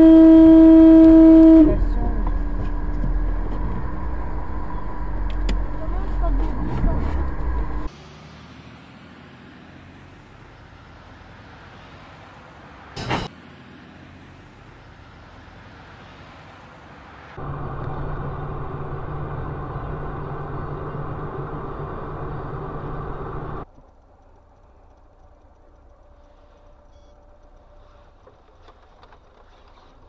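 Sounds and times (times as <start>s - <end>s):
low hum: 0.0s - 7.9s, 17.4s - 28.1s
road and engine noise: 0.0s - 30.0s.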